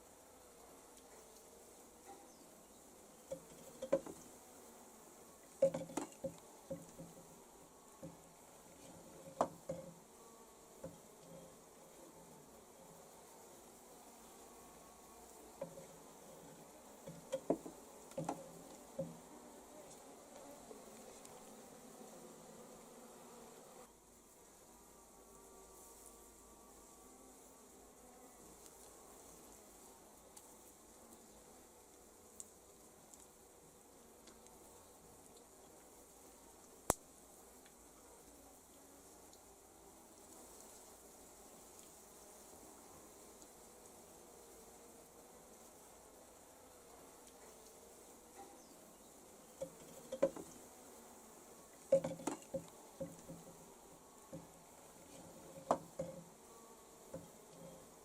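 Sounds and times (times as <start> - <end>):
honeybees buzzing: 0.0 - 58.0
light knocks and clatters: 5.6 - 7.2.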